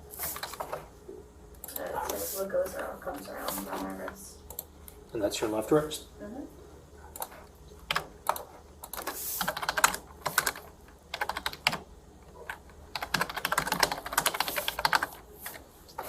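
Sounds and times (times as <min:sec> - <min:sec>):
typing on computer keyboard: 0:07.2 - 0:11.8, 0:12.4 - 0:15.2.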